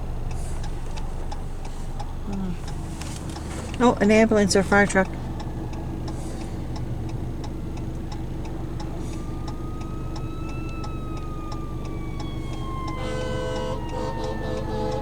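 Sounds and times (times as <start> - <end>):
low engine hum: 0.0 - 15.0
regular ticking: 0.0 - 15.0
emergency vehicle siren wailing: 5.0 - 15.0.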